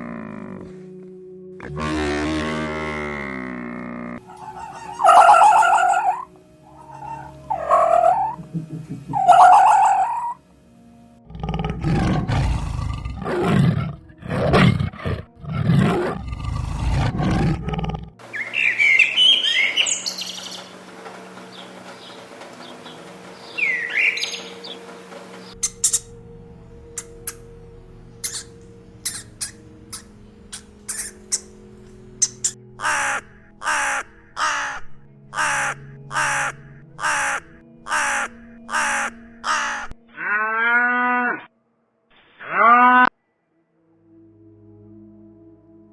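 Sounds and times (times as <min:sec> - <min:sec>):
deep rough animal calls: 0:04.2 - 0:10.4, 0:25.5 - 0:34.4
birds chirping: 0:04.2 - 0:10.5, 0:18.2 - 0:34.7
short pitched animal calls: 0:04.3 - 0:08.4, 0:09.1 - 0:10.4, 0:25.6 - 0:26.2, 0:28.2 - 0:31.6, 0:32.2 - 0:34.0.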